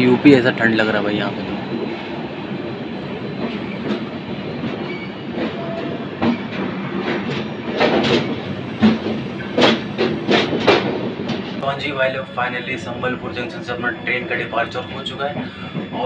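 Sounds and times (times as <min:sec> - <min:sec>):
train wheels rumbling on rail: 0:00.0 - 0:16.0
clickety-clack of rail joints: 0:03.3 - 0:11.6, 0:14.8 - 0:16.0.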